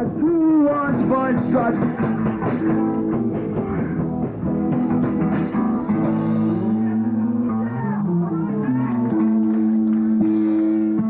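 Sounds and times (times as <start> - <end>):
rock band guitars and bass: 0.0 - 11.0.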